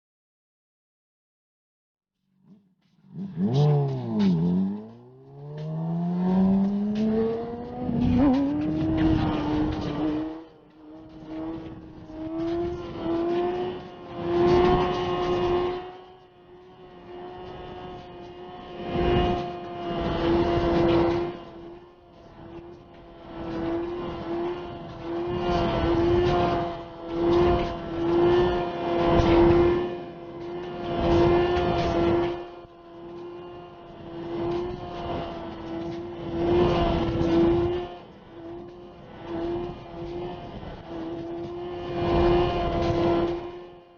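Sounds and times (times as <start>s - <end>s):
motorcycle engine at high revs: 2.5s - 43.9s
wind gusts: 3.2s - 15.8s
wind noise on microphone: 6.4s - 10.4s, 39.3s - 43.5s.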